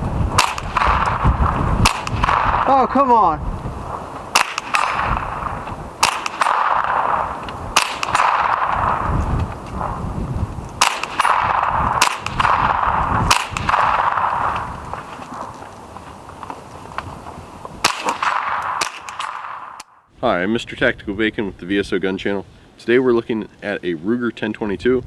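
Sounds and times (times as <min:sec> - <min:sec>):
suppressed rifle shots: 0:00.3 - 0:03.2, 0:03.9 - 0:10.0, 0:10.7 - 0:15.7, 0:17.8 - 0:19.9.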